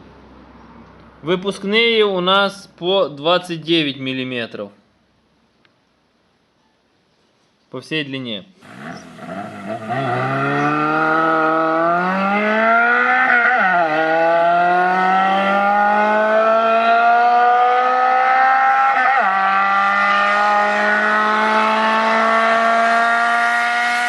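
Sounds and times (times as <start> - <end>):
car engine accelerating hard: 8.6 - 24.0.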